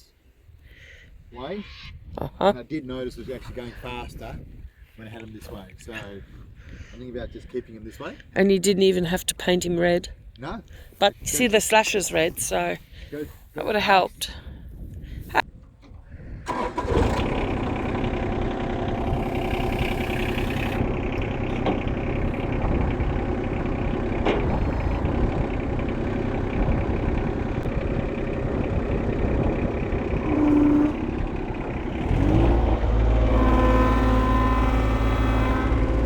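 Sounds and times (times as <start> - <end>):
tractor engine idling: 16.4 - 36.0.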